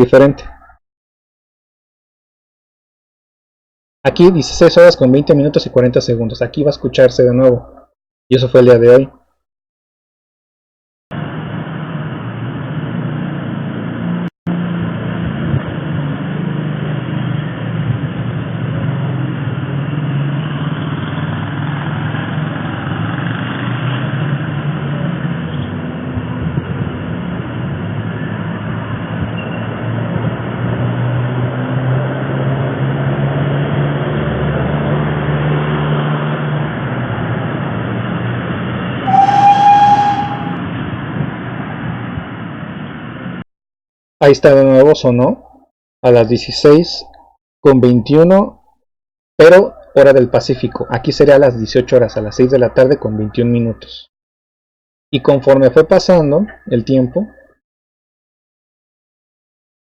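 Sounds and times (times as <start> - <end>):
high-pitched beep: 39.1 - 40.6.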